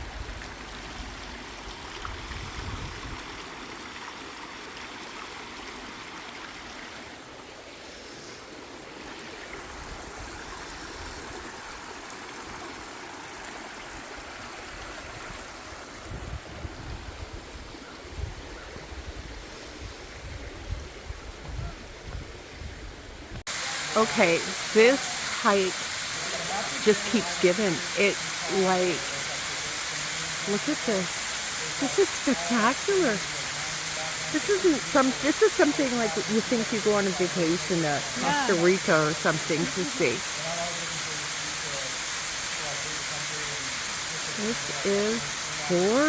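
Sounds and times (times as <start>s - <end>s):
water splashing over rocks: 23.5s - 46.0s.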